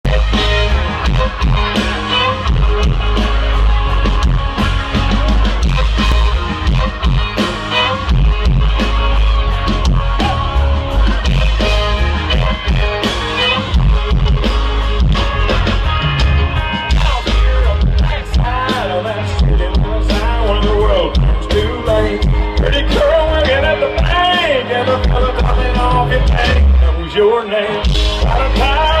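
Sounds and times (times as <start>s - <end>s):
drum beat: 0.0s - 26.8s, 27.8s - 29.0s
heavy bass: 0.0s - 29.0s
live country band playing: 0.0s - 29.0s.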